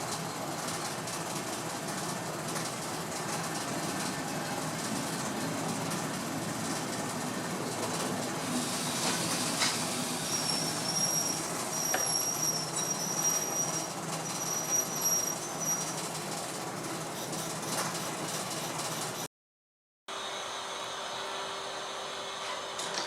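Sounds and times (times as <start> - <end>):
train running on rails: 0.0 - 19.3, 20.1 - 23.0
high metallic squeal: 10.2 - 16.0.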